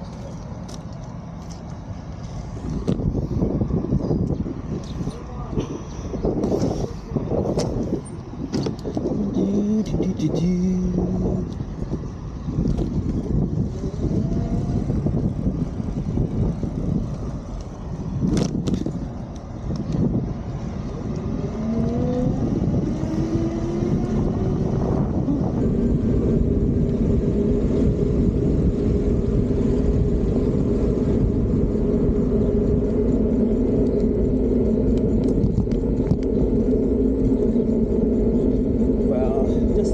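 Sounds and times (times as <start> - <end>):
wind: 0.0 - 39.9
electric bike motor whining: 10.8 - 39.9.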